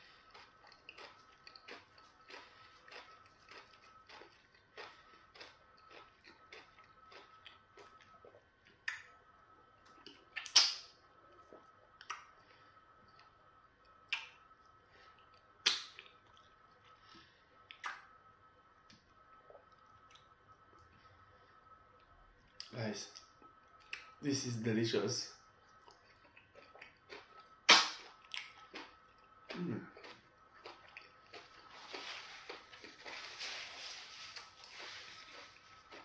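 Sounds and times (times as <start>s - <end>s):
person chewing: 0.0s - 9.1s, 25.6s - 36.0s
wet mouth smacks: 10.4s - 10.8s, 15.6s - 16.1s, 17.7s - 18.0s, 27.7s - 28.5s.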